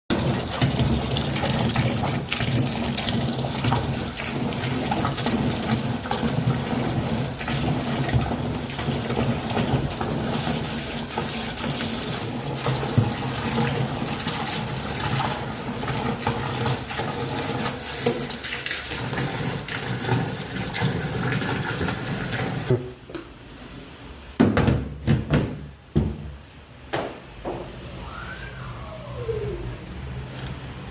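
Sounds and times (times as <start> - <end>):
washing machine motor hum: 0.1 - 22.9
water churning in washing machine: 0.1 - 22.9.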